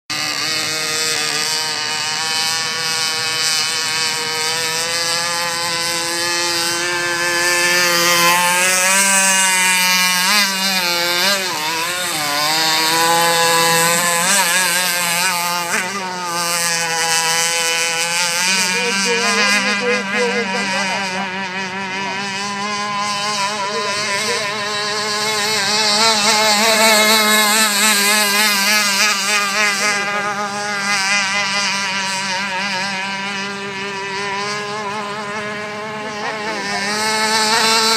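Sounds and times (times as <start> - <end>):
model boat motor whining: 0.1 - 37.9.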